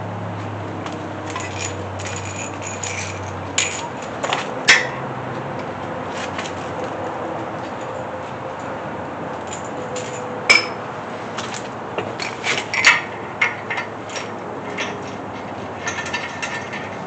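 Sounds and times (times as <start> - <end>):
sharp metal knocks: 0.9 - 5.0, 9.5 - 10.8
metal parts and tools clinking: 1.2 - 5.0, 9.4 - 10.8, 11.4 - 17.0.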